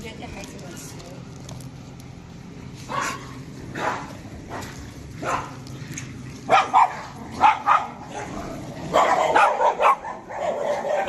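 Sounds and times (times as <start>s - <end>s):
dogs barking: 2.8s - 5.7s, 6.3s - 11.0s.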